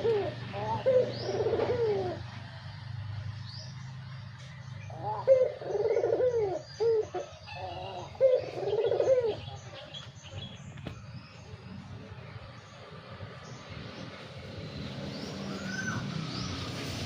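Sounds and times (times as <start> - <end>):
dove cooing: 0.0 - 2.4, 4.9 - 9.9
small birds chirping: 0.0 - 17.0.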